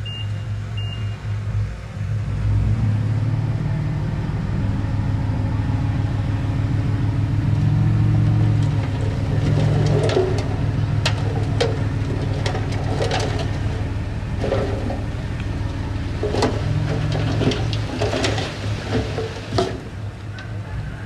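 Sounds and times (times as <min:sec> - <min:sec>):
diesel engine running: 0:00.0 - 0:21.0
sharp clicks and knocks: 0:08.6 - 0:15.5.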